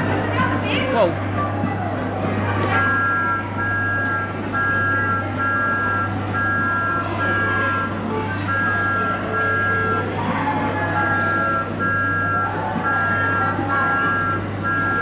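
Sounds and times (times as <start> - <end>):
two-note electronic beeping: 10.9 - 15.0.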